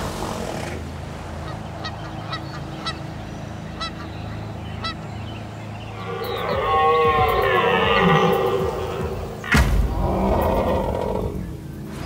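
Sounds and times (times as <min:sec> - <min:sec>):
water splashing: 0:00.0 - 0:01.9
honking bird calls: 0:01.3 - 0:12.0.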